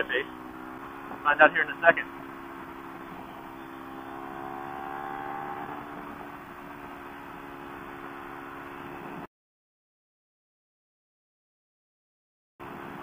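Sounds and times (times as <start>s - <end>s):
faint rising whine: 0.0s - 9.3s
motorcycle engine running: 0.0s - 9.3s
wind and road noise: 0.0s - 9.3s, 12.6s - 13.0s.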